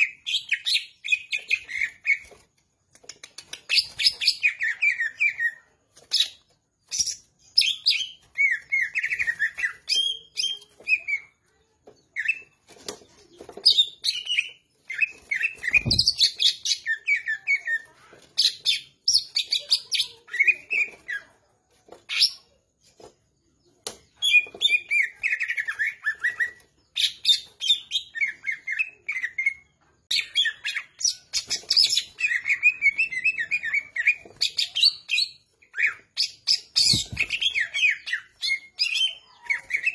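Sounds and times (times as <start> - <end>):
bird singing chirps and whistles: 7.0 - 11.3, 13.7 - 17.7, 24.2 - 39.9.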